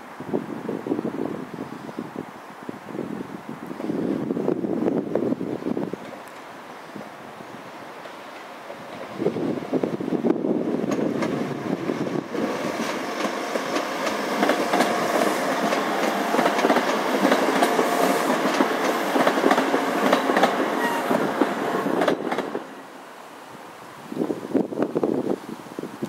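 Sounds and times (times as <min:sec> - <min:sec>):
diesel train rumbling past: 0:03.8 - 0:24.6
wheels clicking over rail joints: 0:07.9 - 0:22.7.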